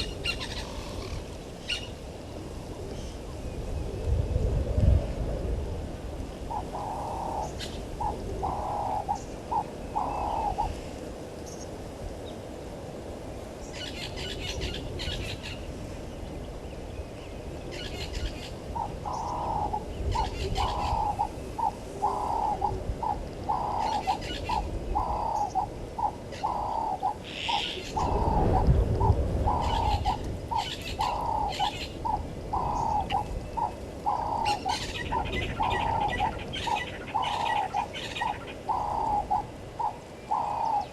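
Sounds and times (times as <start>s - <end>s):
dove cooing: 6.4s - 11.0s, 17.8s - 40.9s
small birds chirping: 13.6s - 40.9s.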